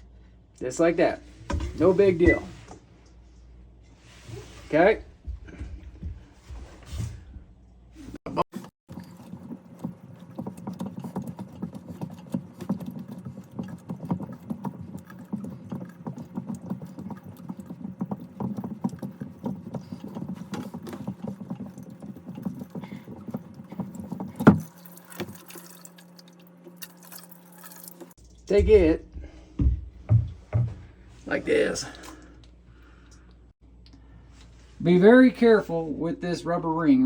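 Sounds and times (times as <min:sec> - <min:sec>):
water dripping: 0:08.9 - 0:29.0.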